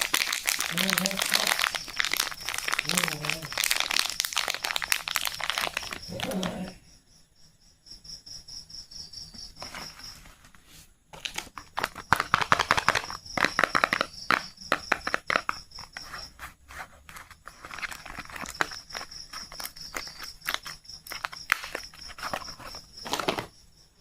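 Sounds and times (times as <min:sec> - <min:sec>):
wrapper crinkling and tearing: 0:00.0 - 0:06.7, 0:11.2 - 0:14.4, 0:17.2 - 0:23.5.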